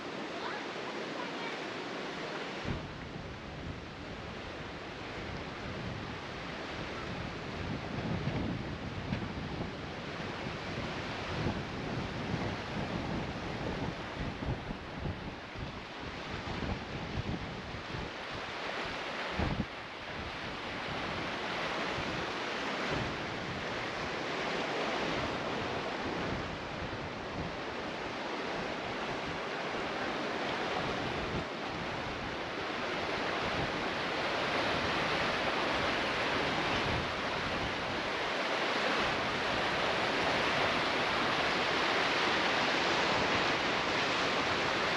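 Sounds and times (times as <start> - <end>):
rushing water: 0.0 - 44.9
wind buffeting microphone: 2.6 - 44.9.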